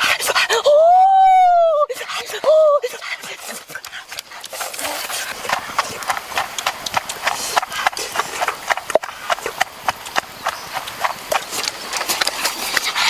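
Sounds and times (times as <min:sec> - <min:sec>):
wet chewing and lip-smacking: 0:03.0 - 0:13.0.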